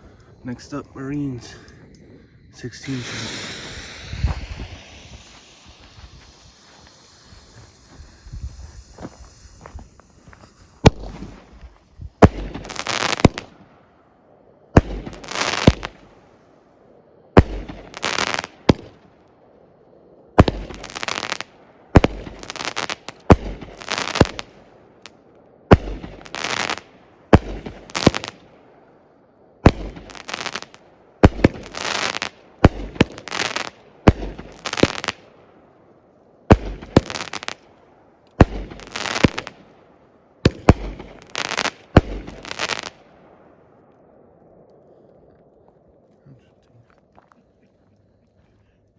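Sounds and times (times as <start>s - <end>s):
fireworks bangs: 0.0s - 13.7s, 14.7s - 16.2s, 17.4s - 19.0s, 20.4s - 24.6s, 25.7s - 28.6s, 29.6s - 35.4s, 36.5s - 37.7s, 38.3s - 43.7s.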